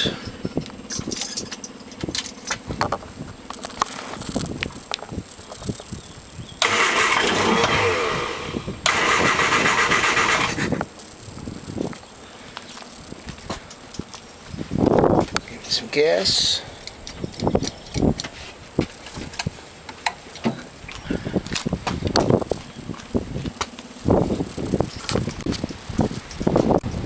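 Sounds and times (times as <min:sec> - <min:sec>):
starter cranking engine: 0:06.6 - 0:10.9
light irregular clicking: 0:16.8 - 0:20.6.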